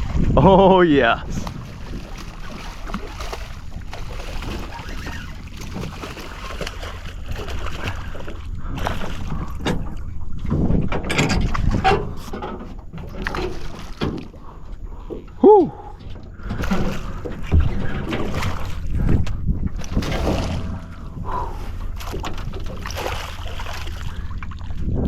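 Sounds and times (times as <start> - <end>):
water splashing around boat: 0.0 - 25.0
wind buffeting microphone: 0.0 - 25.0
knocks on boat: 16.1 - 19.2.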